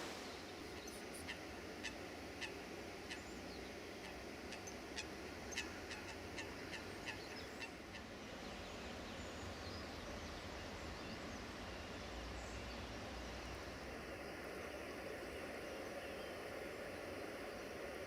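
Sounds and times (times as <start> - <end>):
waterfowl calling: 0.0 - 8.1.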